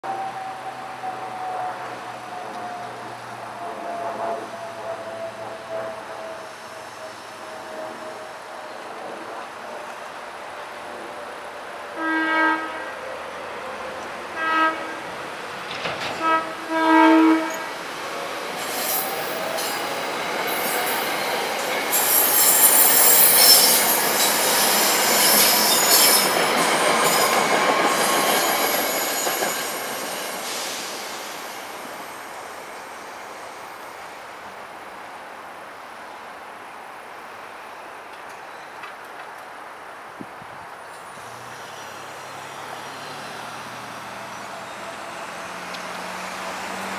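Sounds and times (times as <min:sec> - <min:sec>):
train horn blasts: 0:12.0 - 0:13.0, 0:14.3 - 0:15.3, 0:16.0 - 0:17.9
train wheels clattering and squealing: 0:15.2 - 0:34.1.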